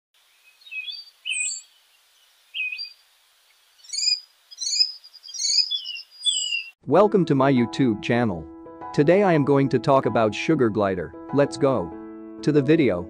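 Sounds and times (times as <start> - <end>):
songbirds chirping: 0.2 - 6.8.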